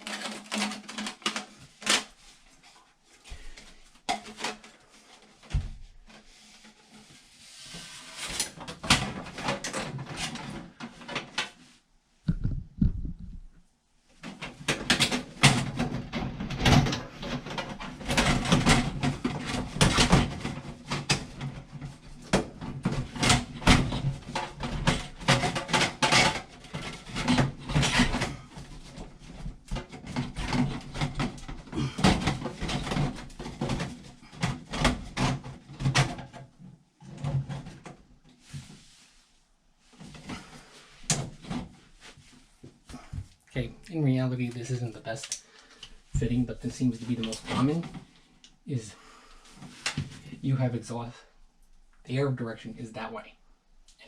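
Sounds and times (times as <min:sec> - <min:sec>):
metal ducting knocks and rattles: 0:00.0 - 0:02.3, 0:08.5 - 0:11.5, 0:14.2 - 0:39.0, 0:40.0 - 0:43.3.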